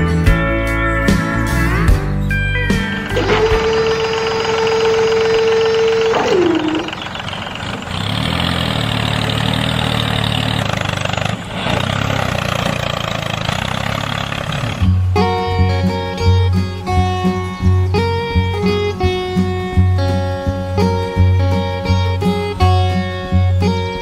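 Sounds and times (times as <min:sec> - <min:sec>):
engine running steadily: 0:00.0 - 0:24.0
horn-like tone bending in pitch: 0:03.0 - 0:07.2.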